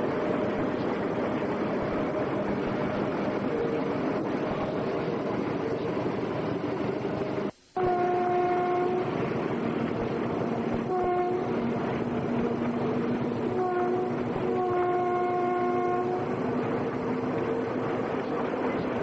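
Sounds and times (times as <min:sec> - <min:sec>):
train rumbling on rails: 0:00.0 - 0:19.0
train horn blasts: 0:07.8 - 0:09.2, 0:10.7 - 0:12.6, 0:13.3 - 0:16.5.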